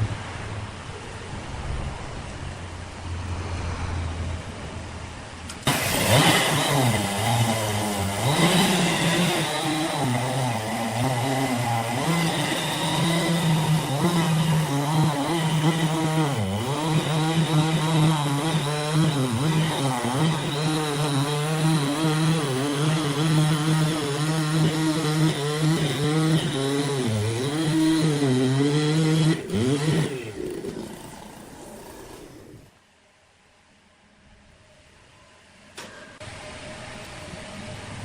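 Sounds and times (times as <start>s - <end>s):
small engine revving: 5.6s - 32.8s.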